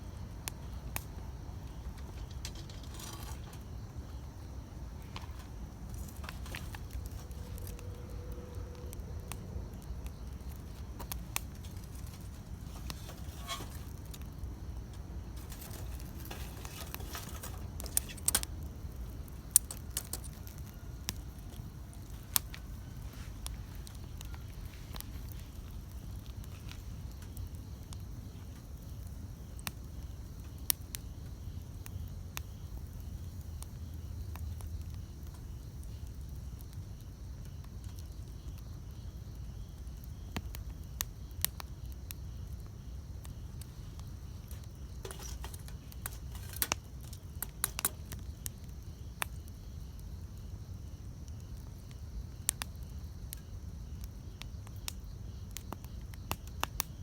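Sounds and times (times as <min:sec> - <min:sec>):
campfire rumble: 0:00.0 - 0:57.0
wood popping and crackling: 0:00.0 - 0:57.0.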